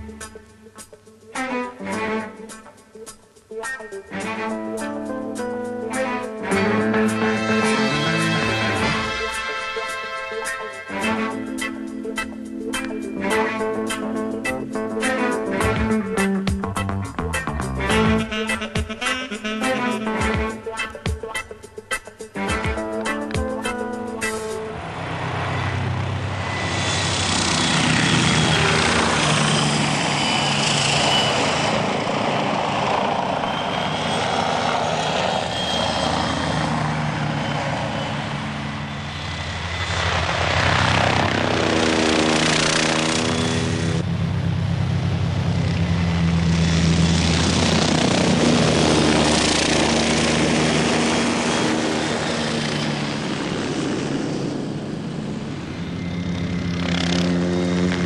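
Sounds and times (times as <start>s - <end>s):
helicopter flying by: 5.9s - 9.9s, 22.4s - 58.0s.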